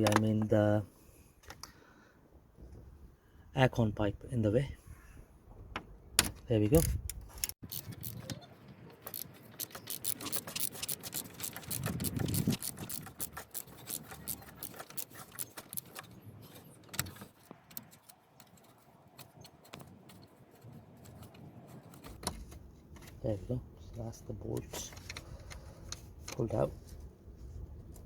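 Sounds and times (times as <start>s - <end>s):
socket ratchet clicking: 9.1s - 16.0s.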